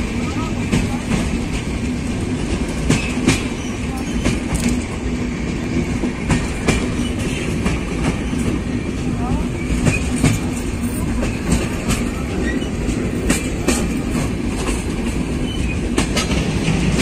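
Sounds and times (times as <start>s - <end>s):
train rumbling inside coach: 0.0s - 17.0s
wheels clacking over rail joints: 9.3s - 17.0s.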